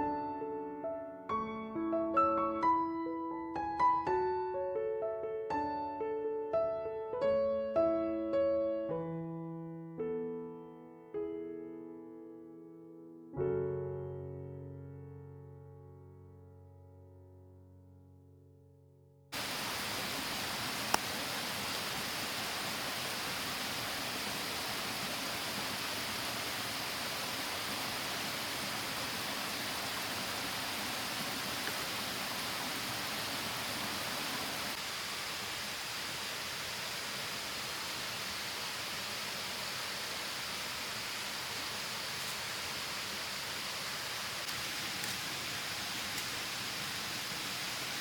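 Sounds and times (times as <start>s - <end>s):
waterfall rushing: 19.4s - 48.0s.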